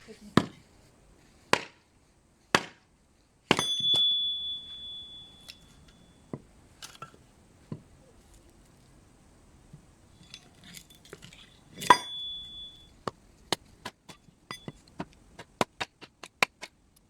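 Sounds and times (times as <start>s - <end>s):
struck object ringing: 3.5s - 6.3s, 10.2s - 12.9s, 14.5s - 14.8s.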